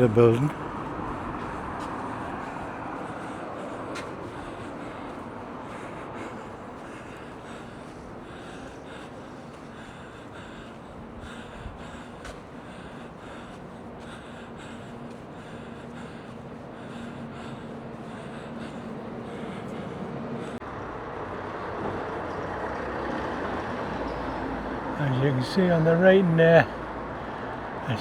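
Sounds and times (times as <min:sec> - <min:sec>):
close breathing: 0:00.0 - 0:20.6, 0:26.5 - 0:28.0
low drone: 0:00.0 - 0:21.0
traffic hum: 0:00.0 - 0:28.0.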